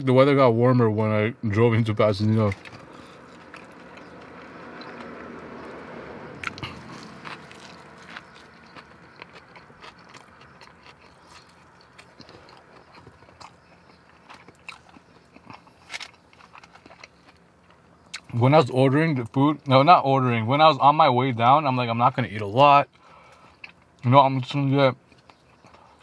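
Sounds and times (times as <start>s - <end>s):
person chewing food: 2.4s - 18.3s, 22.9s - 24.0s, 25.0s - 26.0s.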